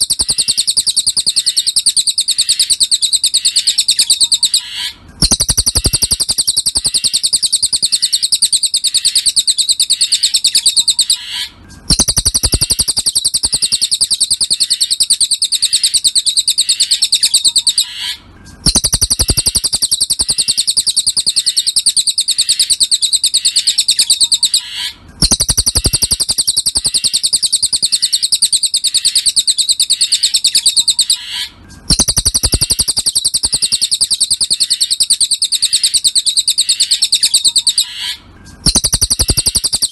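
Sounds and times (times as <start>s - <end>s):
bird chattering trill: 0.0s - 39.9s.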